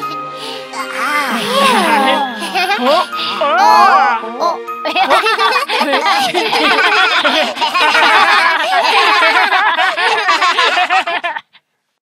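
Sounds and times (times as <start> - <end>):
cartoon voices laughing: 1.3 - 3.2, 4.9 - 11.5.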